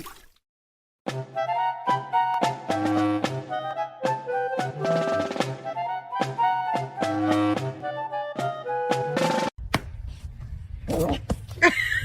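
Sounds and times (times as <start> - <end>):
woodwind melody: 1.1 - 9.5.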